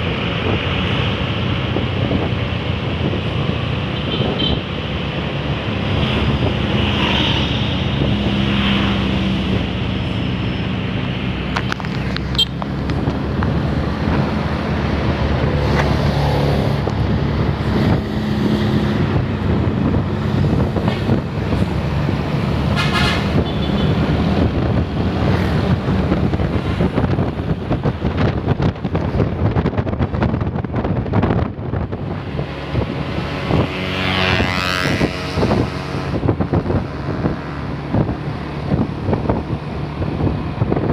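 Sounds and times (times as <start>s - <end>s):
bus engine running: 0.0s - 40.9s
road traffic noise: 0.0s - 40.9s
short horn toots: 22.7s - 23.7s.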